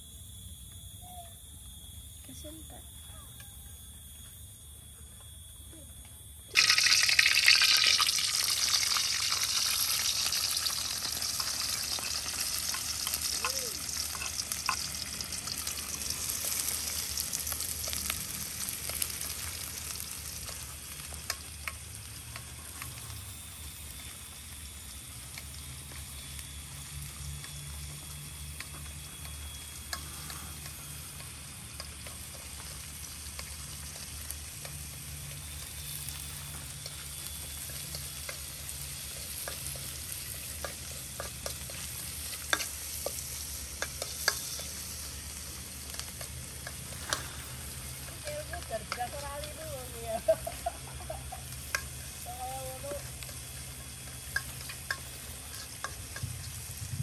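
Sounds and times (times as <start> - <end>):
shallots sizzling in hot oil: 6.5 - 57.0
metal spoon scraping wok: 7.8 - 18.0, 35.2 - 49.7, 53.0 - 56.9.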